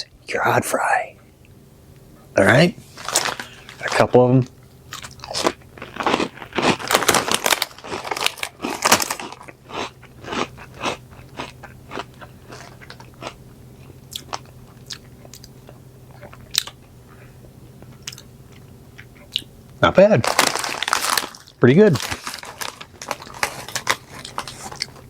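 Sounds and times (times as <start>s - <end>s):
person crunching snack: 4.9s - 16.8s, 20.2s - 25.0s.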